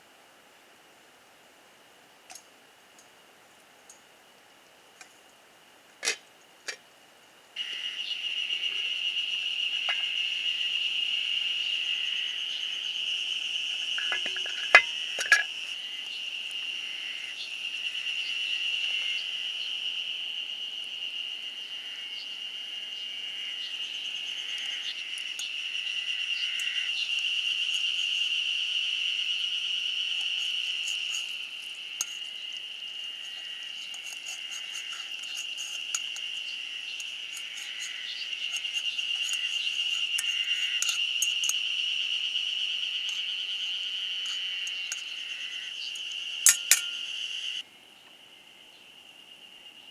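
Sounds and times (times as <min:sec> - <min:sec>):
insects chirring: 0:02.3 - 0:49.9.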